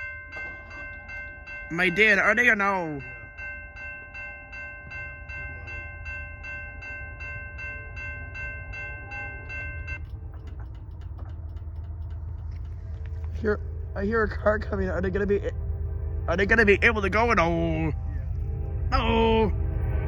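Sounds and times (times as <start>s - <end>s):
railroad crossing bell ringing: 0.0s - 20.0s
steady low rumble: 0.0s - 20.0s
faint rapid clicking: 9.9s - 14.0s.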